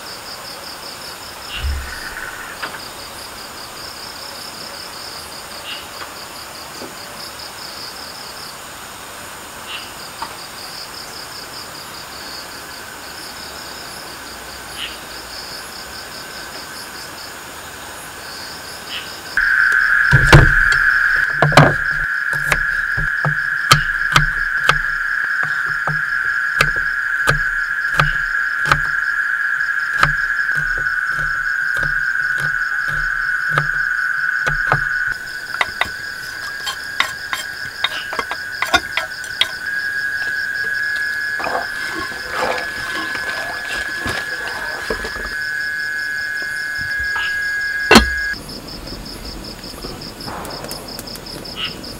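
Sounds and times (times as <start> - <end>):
insect chirring: 1.4 - 4.0, 19.0 - 51.9
sharp knocks: 19.4 - 29.1, 30.0 - 45.4, 47.9 - 48.4.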